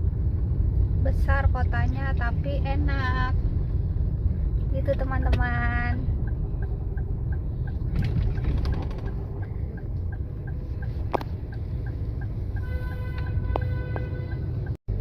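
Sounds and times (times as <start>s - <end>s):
car engine and road rumble: 0.0s - 15.0s
light even ticking: 6.0s - 12.7s.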